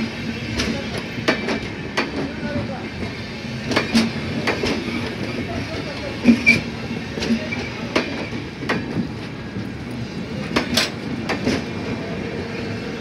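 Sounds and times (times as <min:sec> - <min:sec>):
train rolling rumble: 0:00.0 - 0:13.0
wheels clacking over rail joints: 0:10.5 - 0:11.8.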